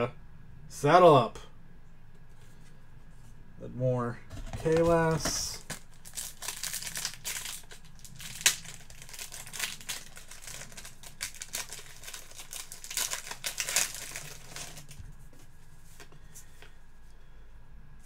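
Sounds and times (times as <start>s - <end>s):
trading cards rustling: 4.3s - 16.8s.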